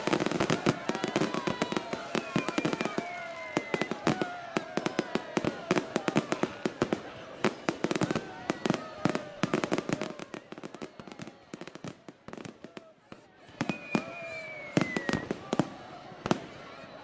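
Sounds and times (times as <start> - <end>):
fireworks crackling: 0.0 - 8.6, 13.6 - 16.6.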